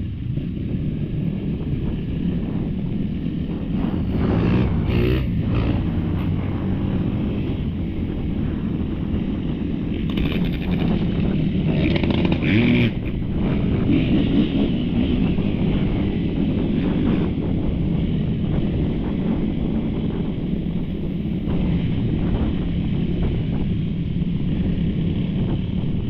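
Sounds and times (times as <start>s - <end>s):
dirt bike engine revving: 3.8s - 6.9s, 10.0s - 16.0s.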